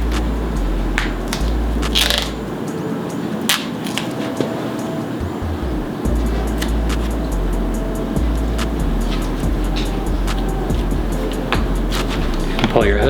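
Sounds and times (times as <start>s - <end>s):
tape crinkling and rustling: 1.0s - 2.5s, 3.5s - 4.6s.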